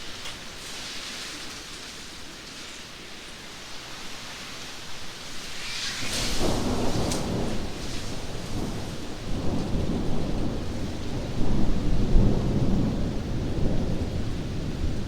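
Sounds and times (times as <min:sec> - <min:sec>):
steady rain: 0:00.0 - 0:15.0
rolling thunder: 0:05.5 - 0:15.0.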